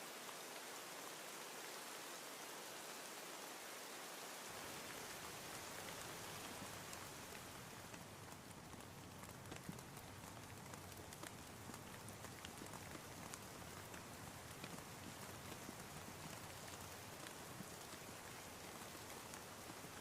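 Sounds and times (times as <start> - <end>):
steady rain: 0.0 - 20.0
raindrops ticking on a surface: 4.4 - 20.0.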